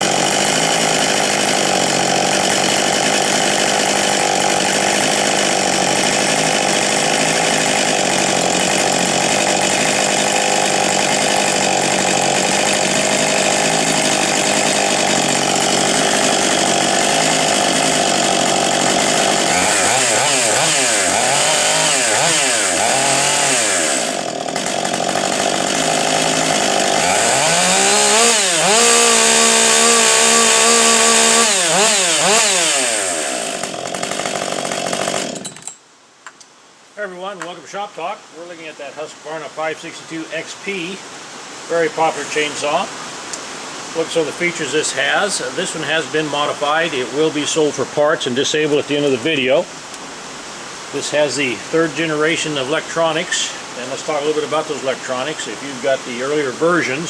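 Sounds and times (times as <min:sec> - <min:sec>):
chainsaw revving: 0:00.0 - 0:35.8.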